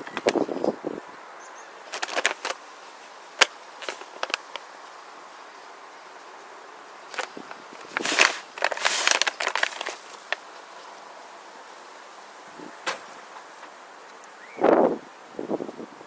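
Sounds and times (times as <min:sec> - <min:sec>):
handling rustles clicks and rattles: 0:01.8 - 0:04.7, 0:07.1 - 0:11.0, 0:12.8 - 0:13.8.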